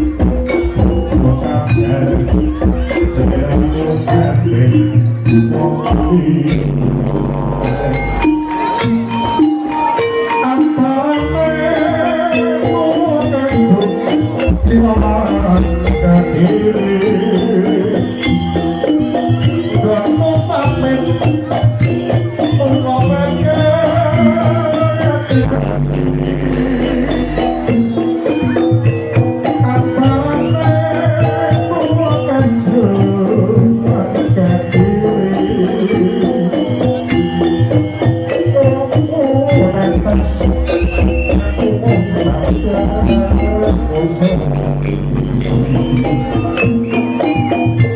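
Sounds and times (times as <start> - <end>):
drums: 0.0 - 47.9
stepped melody: 0.0 - 47.9
traditional ensemble music: 0.0 - 47.9
deep low notes: 0.8 - 8.3.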